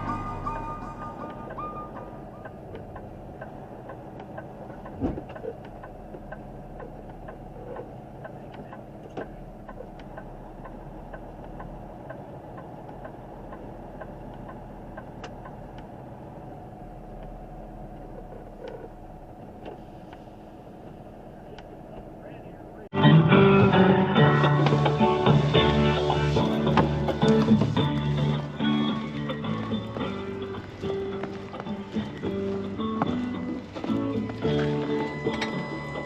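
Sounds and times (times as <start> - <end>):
truck engine humming: 0.0 - 36.0
faint regular ticking: 1.2 - 22.8.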